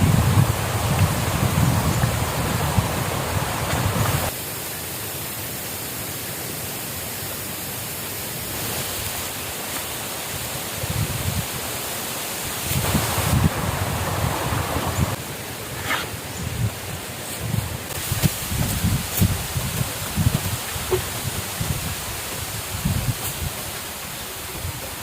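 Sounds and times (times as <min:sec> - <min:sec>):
wind rumble on microphone: 0:00.0 - 0:04.3, 0:10.8 - 0:11.6, 0:12.6 - 0:15.2, 0:16.3 - 0:25.0
running water hiss: 0:00.0 - 0:25.0.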